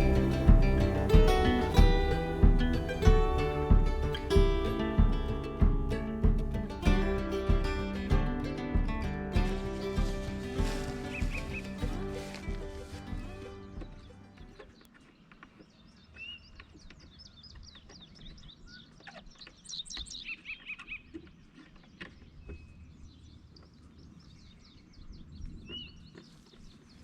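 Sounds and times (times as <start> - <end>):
faint low rumble: 0.0 - 14.8
songbirds chirping: 0.0 - 27.0.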